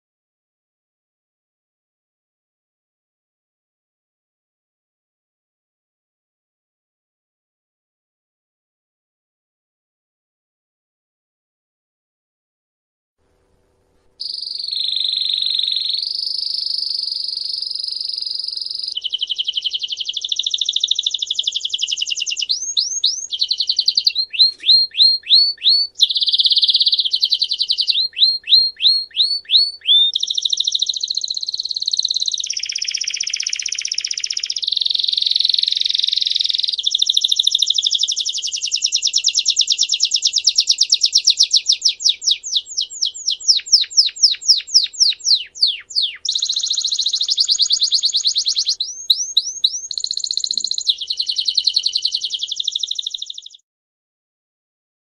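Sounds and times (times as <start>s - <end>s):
songbird trilling: 14.2s - 53.6s.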